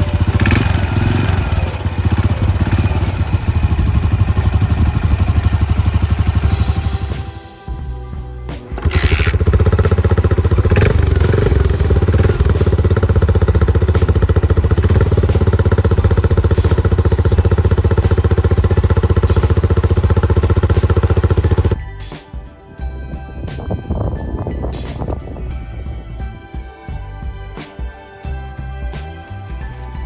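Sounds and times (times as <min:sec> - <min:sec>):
motorcycle engine idling: 0:00.0 - 0:07.5, 0:08.6 - 0:21.8.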